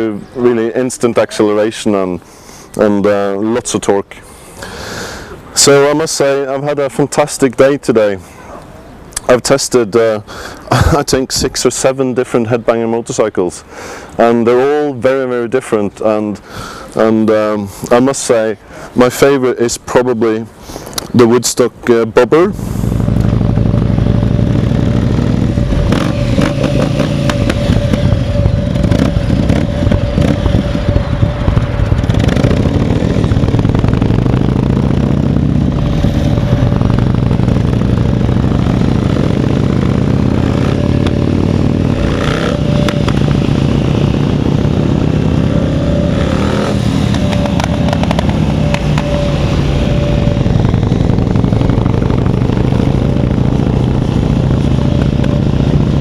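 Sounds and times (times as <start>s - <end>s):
motorcycle engine running: 22.5s - 56.0s.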